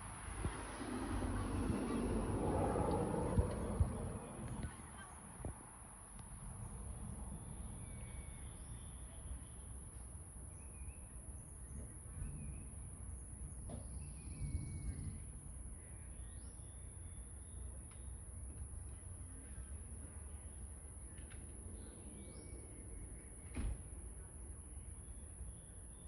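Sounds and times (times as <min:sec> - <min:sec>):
steady low rumble: 0:00.0 - 0:09.0
constant high-pitched buzz: 0:00.0 - 0:26.0.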